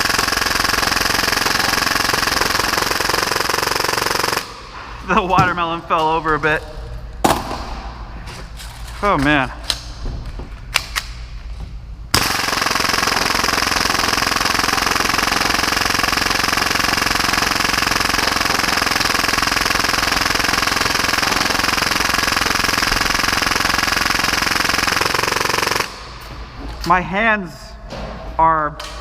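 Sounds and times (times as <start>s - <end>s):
airsoft pistol full-auto burst: 0.0s - 4.6s, 12.2s - 26.1s.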